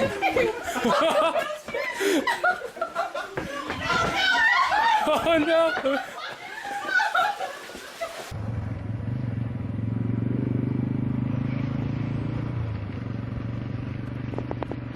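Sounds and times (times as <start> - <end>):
vehicle engine humming: 8.3 - 14.9.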